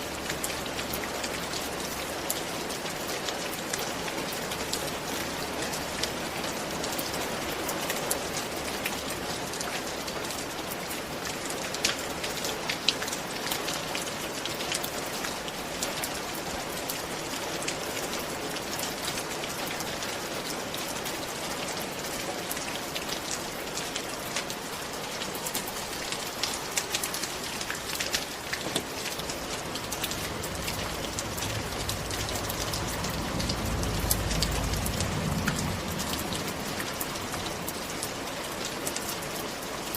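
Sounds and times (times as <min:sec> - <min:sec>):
steady rain falling: 0:00.0 - 0:39.9
raindrops tapping on a surface: 0:00.1 - 0:39.9
low rumble: 0:29.1 - 0:38.0.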